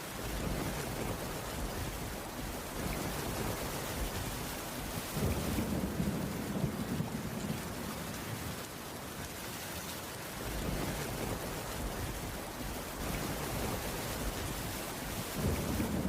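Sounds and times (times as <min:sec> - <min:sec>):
heavy rain on wooden roof: 0:00.0 - 0:16.0.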